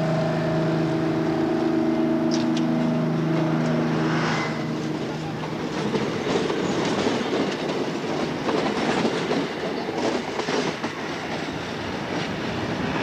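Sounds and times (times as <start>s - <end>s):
train rumble and rush: 0.0s - 13.0s
wheels clacking over rail joints: 4.8s - 12.7s.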